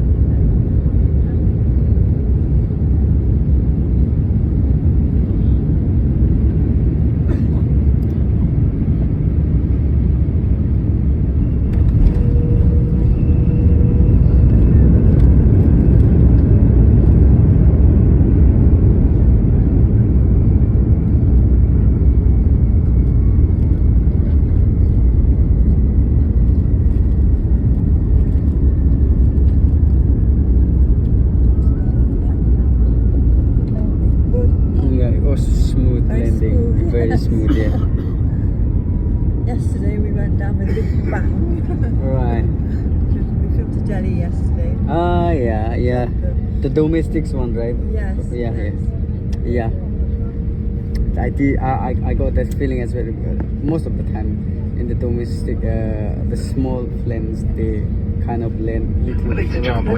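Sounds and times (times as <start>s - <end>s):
airliner engine and airflow rumble: 0.0s - 59.9s
high whine falling in pitch: 11.6s - 15.2s.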